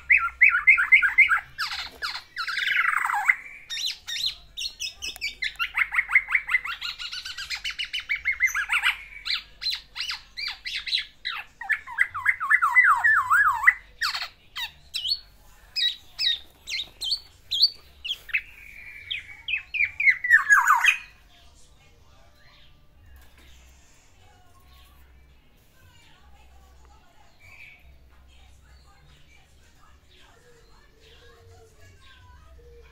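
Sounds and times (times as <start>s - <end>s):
oriole singing varied notes: 0.0s - 24.0s.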